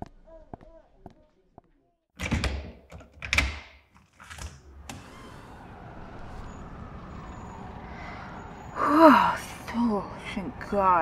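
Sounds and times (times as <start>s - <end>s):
distant traffic: 4.6s - 11.0s.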